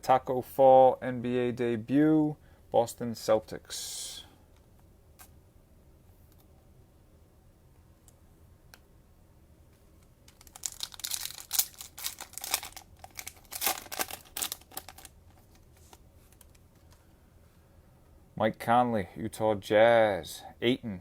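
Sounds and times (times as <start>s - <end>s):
plastic wrapper tearing and crinkling: 10.2s - 16.6s.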